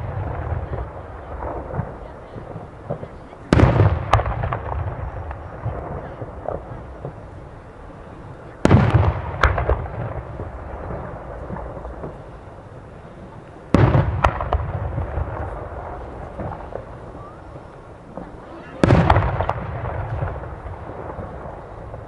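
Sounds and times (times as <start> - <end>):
firework booms: 0.0 - 22.0
rumble after boom: 18.1 - 22.0.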